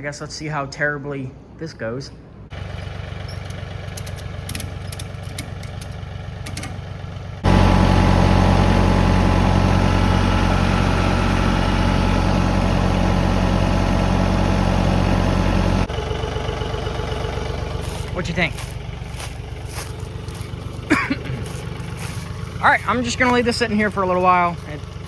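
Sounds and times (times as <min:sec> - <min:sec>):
engine running and revving: 0:02.5 - 0:25.0.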